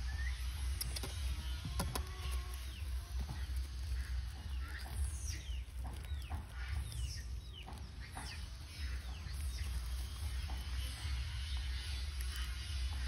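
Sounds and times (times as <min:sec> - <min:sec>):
birds chirping: 0:00.0 - 0:13.0
steady low rumble: 0:00.0 - 0:13.0.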